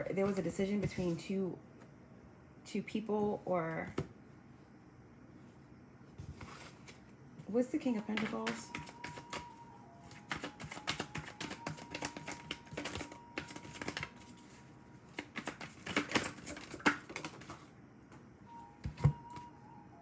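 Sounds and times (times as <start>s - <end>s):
cards shuffling with snapping clicks: 8.2s - 9.5s, 10.1s - 14.2s, 15.1s - 17.6s.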